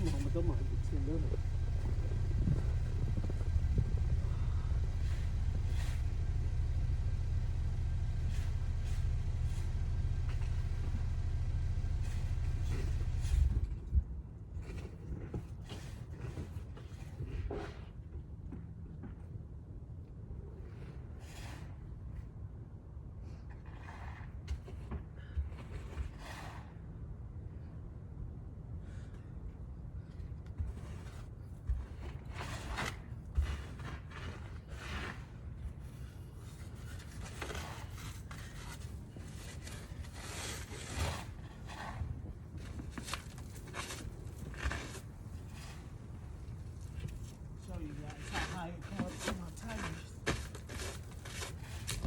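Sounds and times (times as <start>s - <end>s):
brushing and scraping snow: 0.0s - 13.6s, 32.1s - 52.0s
steady low rumble: 0.0s - 14.7s.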